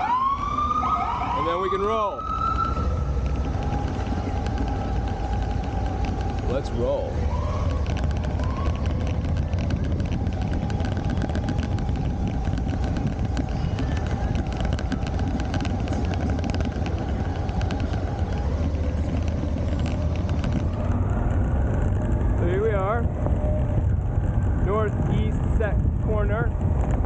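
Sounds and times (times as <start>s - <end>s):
motorcycle engine rumbling: 0.0s - 27.0s.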